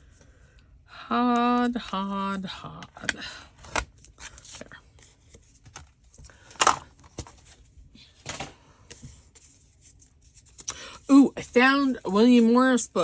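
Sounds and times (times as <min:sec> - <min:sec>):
paper and card rustling: 0:03.2 - 0:12.8.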